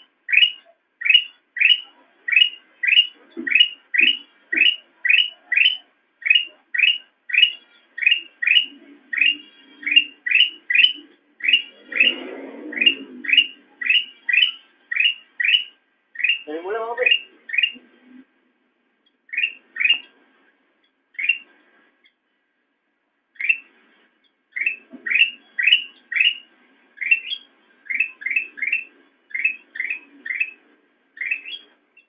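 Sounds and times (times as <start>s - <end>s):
bird chirping: 0.0s - 18.3s, 19.0s - 22.4s, 23.3s - 32.0s.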